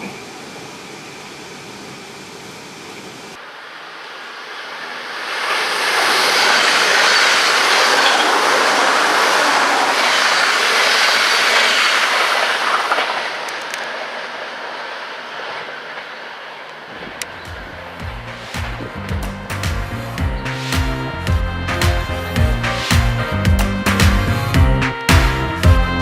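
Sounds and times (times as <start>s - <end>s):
train passing at speed: 0.0s - 26.0s.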